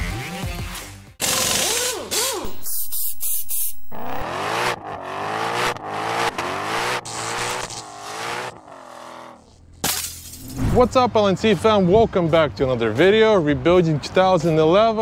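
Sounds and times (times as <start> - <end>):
car engine revving: 2.4 - 9.6
hissing with pitch sweeps: 2.5 - 4.2.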